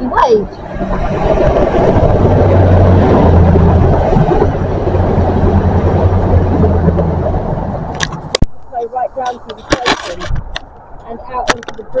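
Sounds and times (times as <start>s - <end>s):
diesel engine drone: 0.0s - 12.0s
train wheels rumbling on rails: 0.4s - 7.8s.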